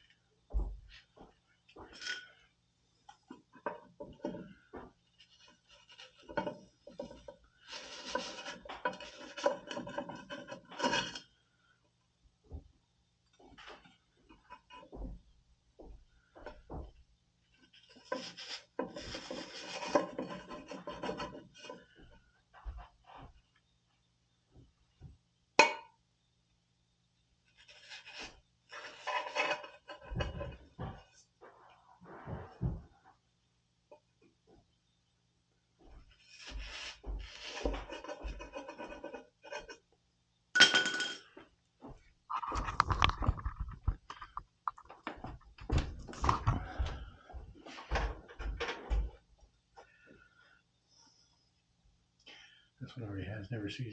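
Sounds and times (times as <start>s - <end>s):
parts scraping and rustling: 1.1s - 11.4s, 16.3s - 23.6s, 27.4s - 33.2s, 35.8s - 39.9s, 40.9s - 49.2s.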